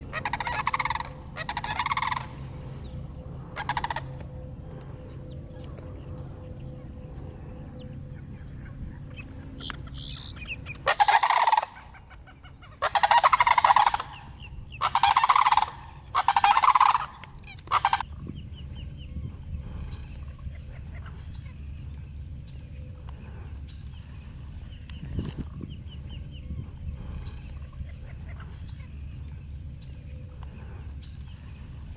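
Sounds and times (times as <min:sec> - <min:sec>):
high-pitched insect buzz: 0:00.0 - 0:12.0
cranes calling: 0:00.0 - 0:22.0.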